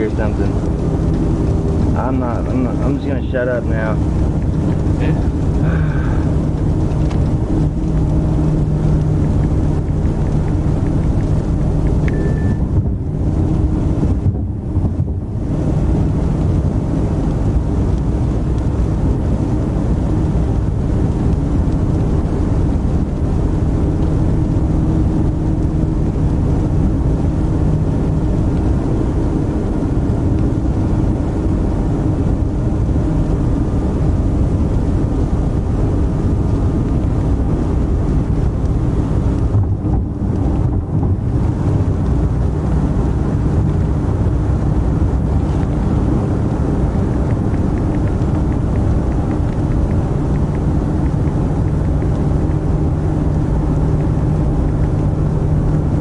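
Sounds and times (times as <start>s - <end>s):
car engine and road rumble: 0.0s - 56.0s
short beep: 12.0s - 12.7s.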